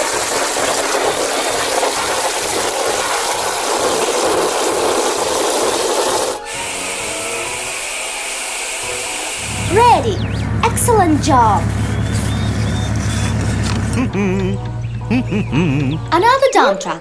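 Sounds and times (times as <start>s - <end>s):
water spraying over plastic toy: 0.0s - 9.5s.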